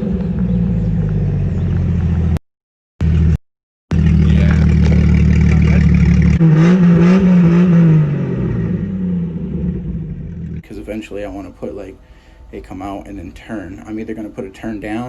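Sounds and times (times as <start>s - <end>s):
car engine idling and revving: 0.0s - 2.4s, 3.0s - 10.6s.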